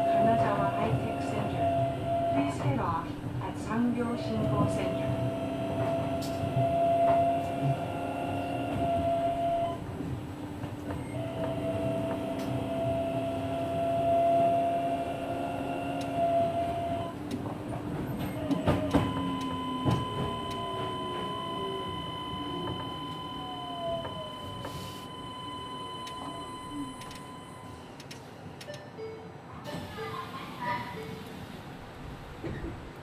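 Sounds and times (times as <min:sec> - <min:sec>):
train running rumble: 0:00.0 - 0:27.4
train inverter whine: 0:00.0 - 0:28.8
tone gliding down: 0:18.5 - 0:27.8.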